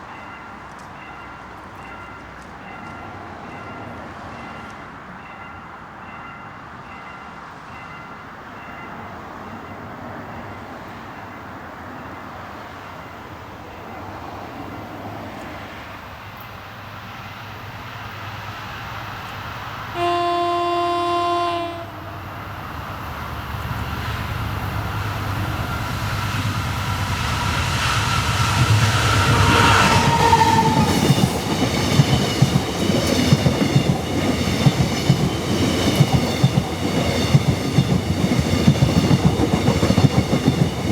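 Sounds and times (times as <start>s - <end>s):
train horn blast: 19.9s - 22.3s, 28.8s - 31.0s.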